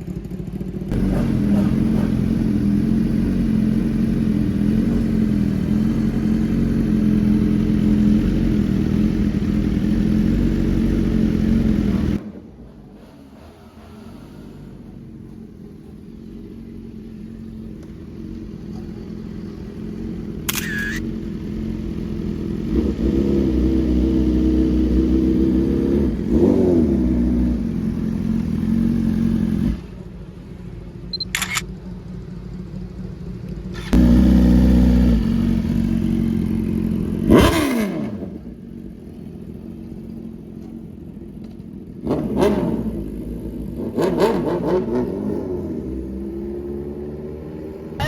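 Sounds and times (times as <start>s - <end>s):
motorcycles accelerating past: 0.9s - 12.2s, 33.8s - 38.6s, 42.0s - 48.0s
sharp click: 20.5s - 21.0s.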